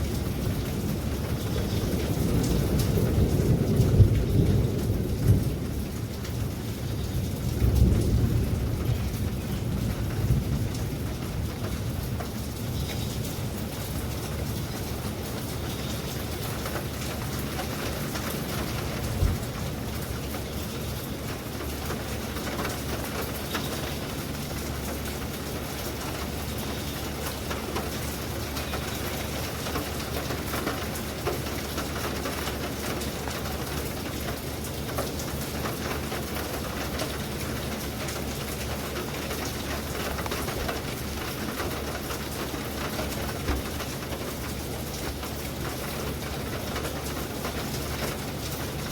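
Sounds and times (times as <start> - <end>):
continuous low rumble: 0.0 - 48.9
steady rain falling: 0.0 - 48.9.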